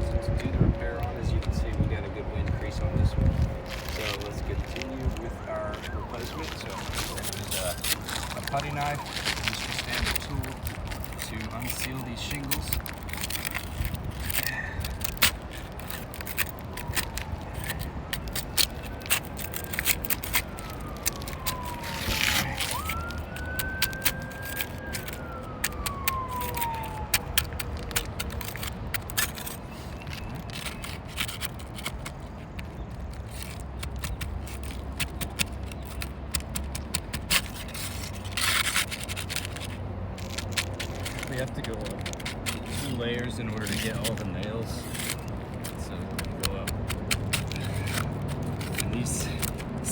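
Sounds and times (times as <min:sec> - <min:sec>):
siren rising and falling: 0:00.0 - 0:12.8, 0:15.8 - 0:29.4
putty knife scraping shingles: 0:05.8 - 0:49.9.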